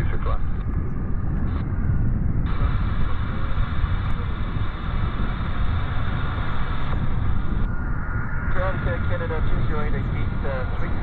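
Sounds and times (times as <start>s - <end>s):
wind rumbling on microphone: 0.0s - 11.0s
radio squelch hiss: 2.5s - 7.5s, 8.5s - 11.0s.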